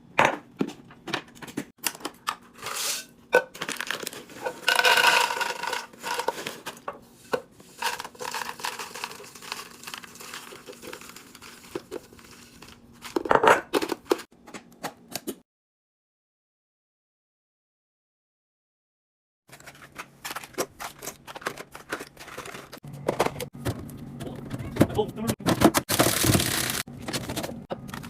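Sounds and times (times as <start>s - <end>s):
items clicking and knocking: 0.2s - 2.5s, 3.3s - 15.4s, 19.5s - 28.0s
packaging crinkling and tearing: 3.6s - 4.4s, 7.8s - 13.3s, 25.9s - 28.0s.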